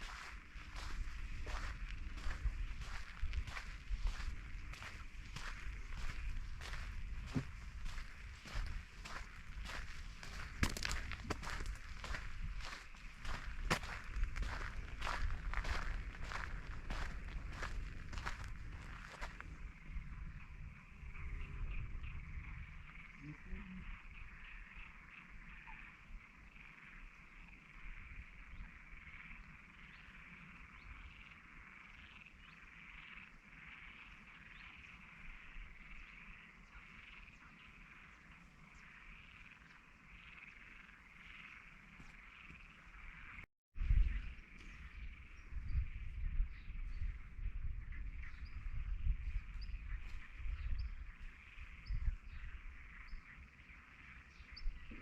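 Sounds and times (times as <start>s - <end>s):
frogs calling in chorus: 0.0s - 43.4s.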